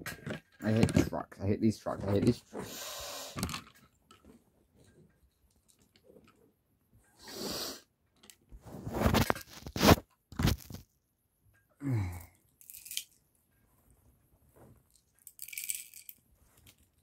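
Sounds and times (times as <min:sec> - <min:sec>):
plastic toy pieces clattering: 0:12.6 - 0:13.2, 0:15.2 - 0:16.9.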